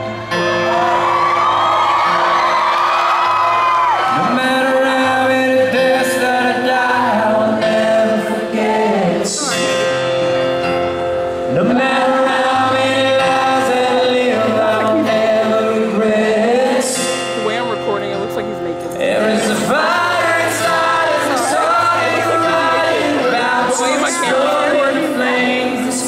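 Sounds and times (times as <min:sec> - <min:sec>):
acoustic guitar: 0:00.0 - 0:26.0
man singing: 0:04.1 - 0:10.1, 0:11.4 - 0:17.6, 0:18.9 - 0:26.0.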